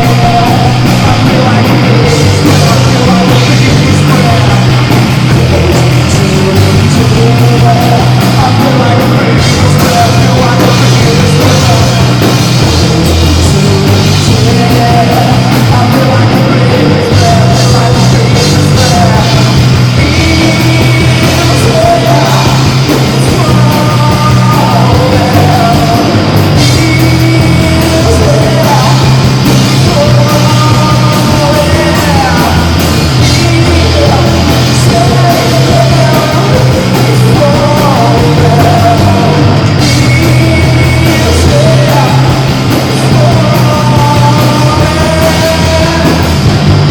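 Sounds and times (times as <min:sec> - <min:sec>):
heavy bass line: 0:00.0 - 0:46.9
live rock band playing: 0:00.0 - 0:46.9
person singing: 0:00.0 - 0:46.9.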